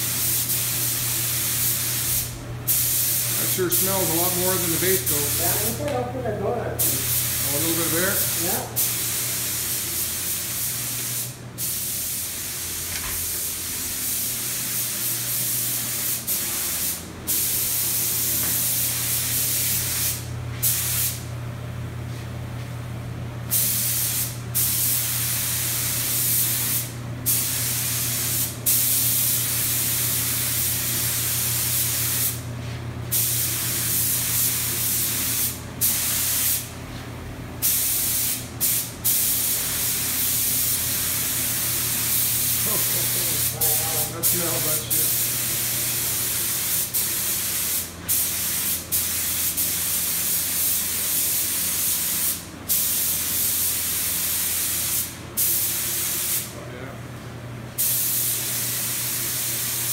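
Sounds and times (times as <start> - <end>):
spray gun hissing: 0.0 - 5.9, 6.8 - 21.2, 23.5 - 36.7, 37.6 - 56.5, 57.8 - 59.9.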